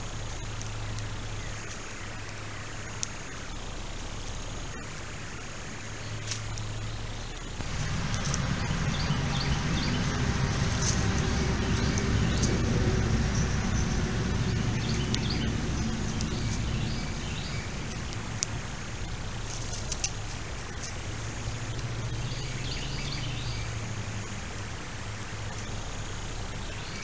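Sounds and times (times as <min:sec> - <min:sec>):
low steady rumble: 0:00.0 - 0:27.0
small birds chirping: 0:00.0 - 0:27.0
sharp ticks: 0:06.2 - 0:23.0.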